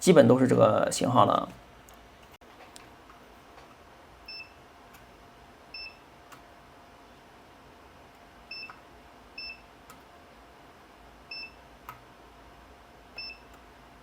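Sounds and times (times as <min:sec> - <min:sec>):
faint steady hum: 0:00.0 - 0:14.0
multimeter high beeps: 0:04.3 - 0:04.6, 0:05.7 - 0:06.0, 0:09.4 - 0:09.6, 0:11.3 - 0:11.6, 0:13.2 - 0:13.5.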